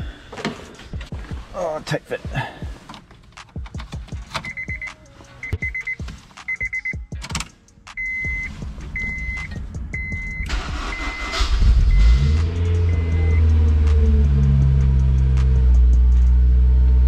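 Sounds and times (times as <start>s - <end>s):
car warning chime beeping: 4.4s - 7.1s, 8.0s - 13.7s
car engine starting and idling: 7.2s - 17.0s.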